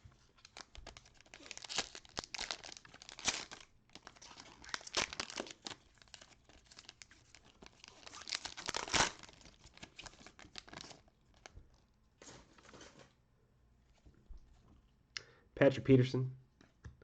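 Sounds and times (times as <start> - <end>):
wrapper being torn and crinkled: 0.3 - 11.5.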